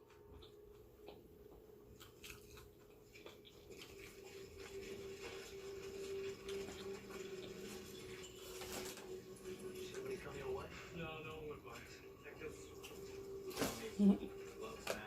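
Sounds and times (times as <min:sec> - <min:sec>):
chewing and mouth clicks: 0:00.0 - 0:09.9.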